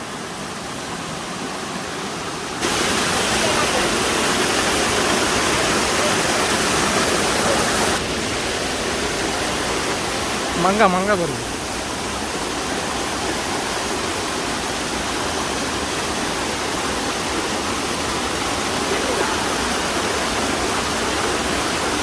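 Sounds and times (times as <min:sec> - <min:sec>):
large waterfall rushing: 0:00.0 - 0:22.0.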